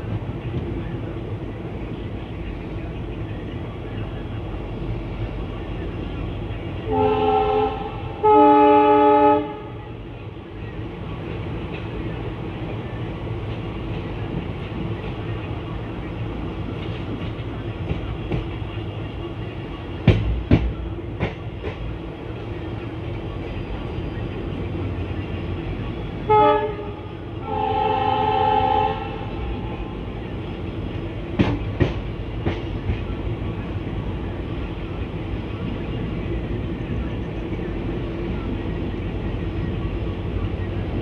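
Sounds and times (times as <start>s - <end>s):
train coach rumbling on track: 0.0s - 41.0s
train horn blasts: 6.9s - 9.8s, 26.2s - 29.6s.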